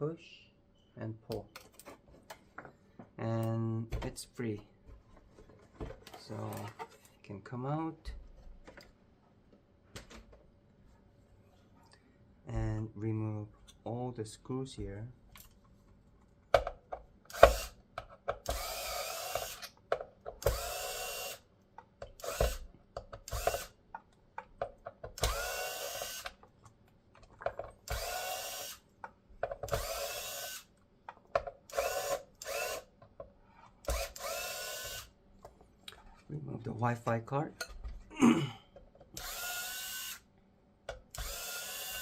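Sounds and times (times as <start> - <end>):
electric screwdriver whining: 17.3 - 17.8, 18.4 - 19.8, 20.4 - 21.4, 22.2 - 23.8, 25.2 - 26.4, 27.9 - 28.8, 29.7 - 30.7, 31.7 - 32.9, 33.8 - 35.1, 39.2 - 40.2, 41.1 - 42.0
clicks and knocks handling screws: 26.2 - 27.8.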